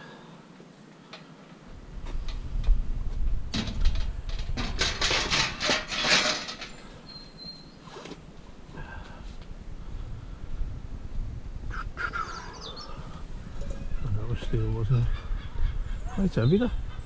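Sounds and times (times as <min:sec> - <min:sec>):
scrap metal clattering: 0:03.6 - 0:07.0
bird chirp: 0:06.7 - 0:08.0, 0:12.0 - 0:17.0.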